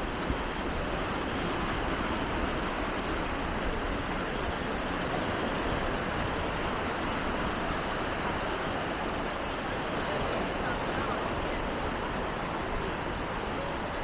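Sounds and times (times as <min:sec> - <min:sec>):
sea surf breaking on a beach: 0:00.0 - 0:14.0.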